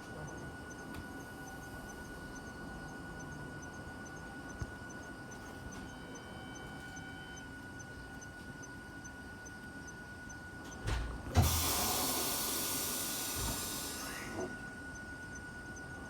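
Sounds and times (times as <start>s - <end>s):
compressed air hissing: 11.4s - 14.4s.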